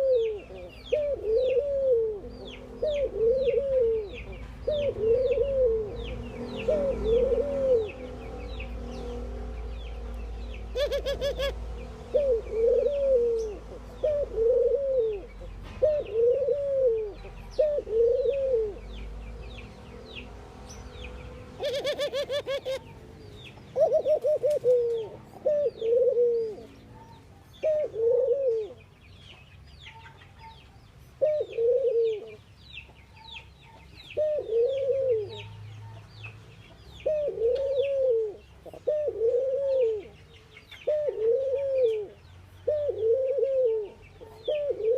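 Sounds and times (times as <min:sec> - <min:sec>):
doves cooing: 0:00.0 - 0:09.3, 0:10.6 - 0:19.0, 0:21.6 - 0:23.0, 0:23.6 - 0:28.9, 0:31.2 - 0:32.4, 0:33.7 - 0:35.6, 0:37.0 - 0:44.9
small birds chirping: 0:00.0 - 0:44.9.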